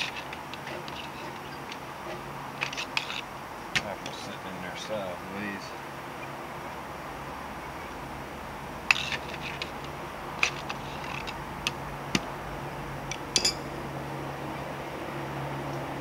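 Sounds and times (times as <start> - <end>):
clicks and taps on metal: 13.1 - 13.6.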